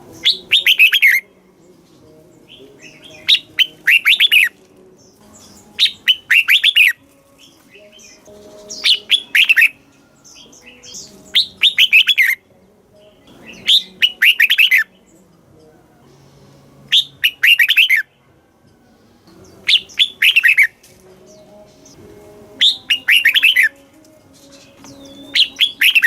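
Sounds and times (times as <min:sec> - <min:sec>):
bird singing bright notes: 0:00.0 - 0:26.0.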